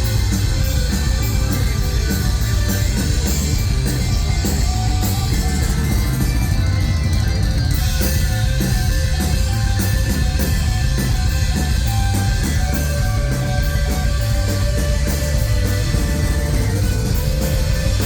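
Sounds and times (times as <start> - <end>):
rock band playing loud: 0.0 - 18.0.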